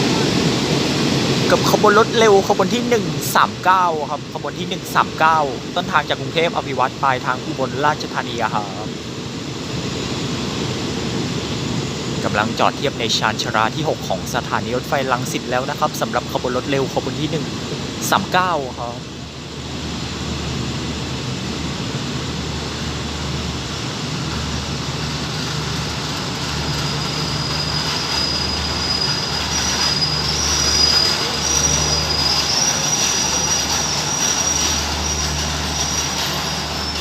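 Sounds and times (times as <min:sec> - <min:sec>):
train wheels rumbling on rails: 0:00.0 - 0:37.0
high thin wheel squeal: 0:25.0 - 0:37.0.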